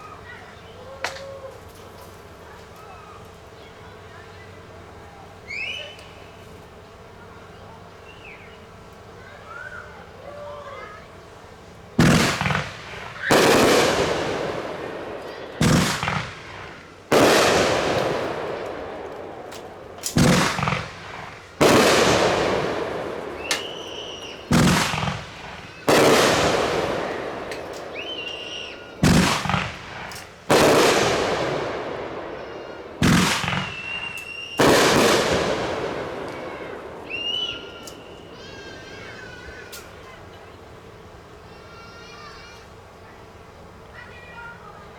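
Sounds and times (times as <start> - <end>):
firework launch crack: 11.7 - 40.1
firework burst: 12.0 - 39.4.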